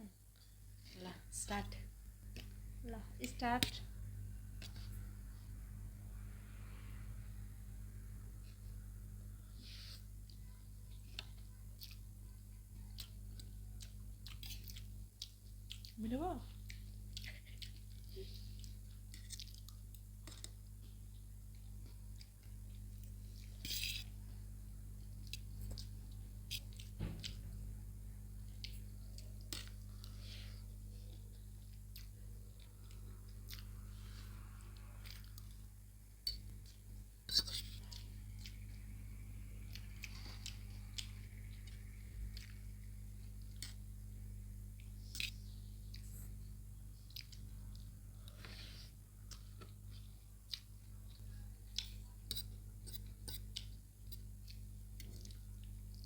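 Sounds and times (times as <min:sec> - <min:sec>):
steady low hum: 0:00.0 - 0:56.0
chewing noodles: 0:09.4 - 0:27.5, 0:28.2 - 0:56.0
eating clicks and smacks: 0:10.2 - 0:24.1, 0:25.0 - 0:27.5, 0:28.4 - 0:33.8, 0:34.5 - 0:44.1, 0:47.0 - 0:48.5, 0:49.2 - 0:56.0.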